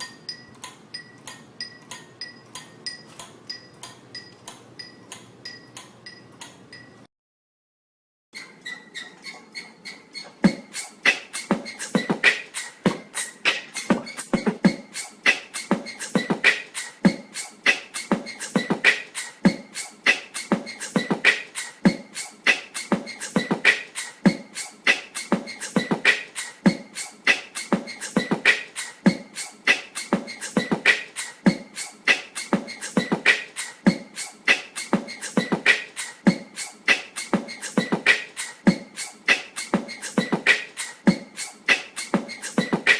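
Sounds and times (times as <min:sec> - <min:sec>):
ceiling fan knocking and clicking: 0:00.0 - 0:07.1.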